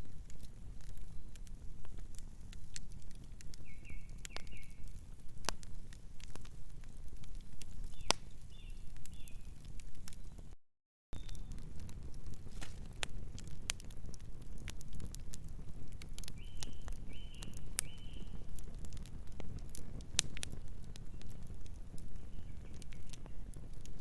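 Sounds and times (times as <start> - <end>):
wood fire crackling and popping: 0.0 - 10.6, 11.2 - 24.0
bird chirping: 11.2 - 11.5, 16.4 - 18.4.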